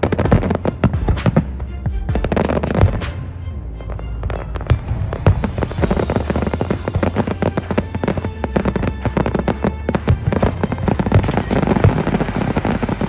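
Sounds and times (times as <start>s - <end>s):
fireworks popping and crackling: 0.0s - 1.6s, 2.2s - 3.1s, 4.3s - 13.0s
music with deep bass: 0.0s - 13.0s.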